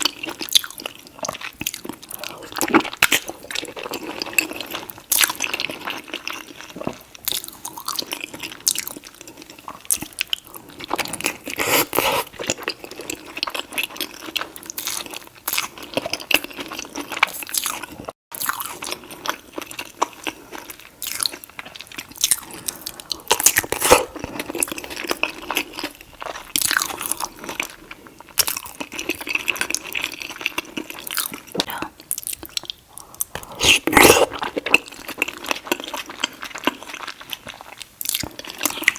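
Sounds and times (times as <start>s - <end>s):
person chewing and smacking: 0.0s - 38.9s.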